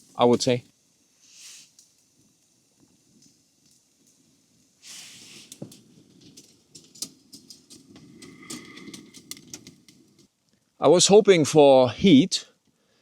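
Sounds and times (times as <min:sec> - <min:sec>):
wood fire crackling and popping: 0:00.0 - 0:10.8
soft hiss: 0:00.0 - 0:13.0
stove low rumble: 0:01.8 - 0:10.4.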